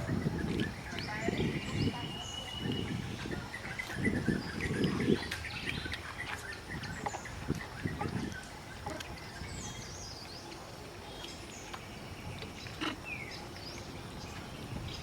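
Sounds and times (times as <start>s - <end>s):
birds chirping and whistling: 0.0s - 15.0s.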